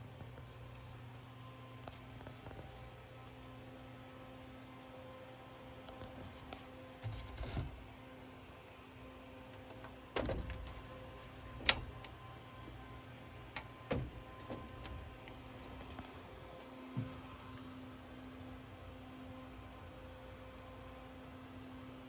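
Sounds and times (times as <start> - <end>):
electrical hum: 5.7 - 19.3
turntable clicks and knocks: 9.6 - 12.2, 13.5 - 16.2.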